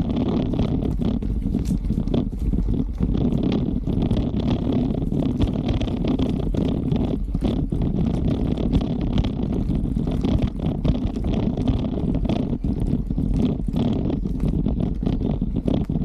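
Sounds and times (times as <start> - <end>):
bike clicks and rattles: 0.0 - 16.0
tyres rumbling on rough ground: 0.0 - 16.0
wind on microphone: 0.0 - 16.0.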